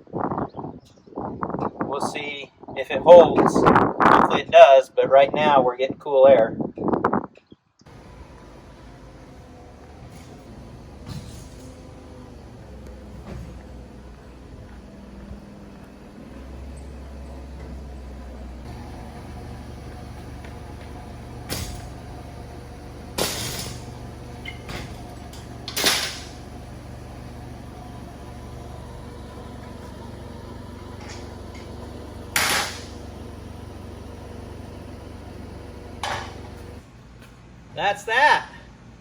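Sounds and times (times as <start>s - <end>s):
aircraft engine idling drone: 7.9s - 36.9s.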